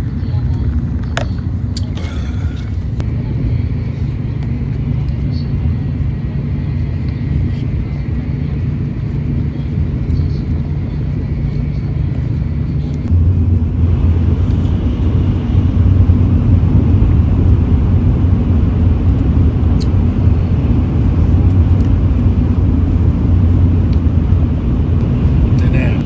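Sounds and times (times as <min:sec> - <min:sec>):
train cabin rumble: 0:00.0 - 0:26.0.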